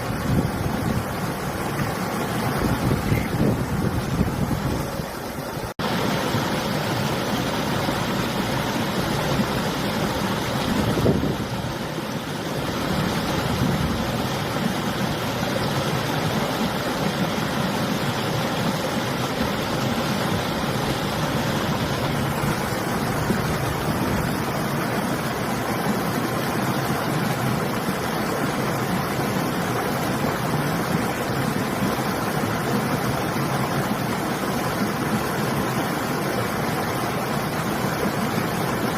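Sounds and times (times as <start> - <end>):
wind blowing across microphone: 0.0 - 5.2, 10.4 - 12.0, 12.6 - 14.6, 20.2 - 24.7
river water rushing: 0.0 - 38.9.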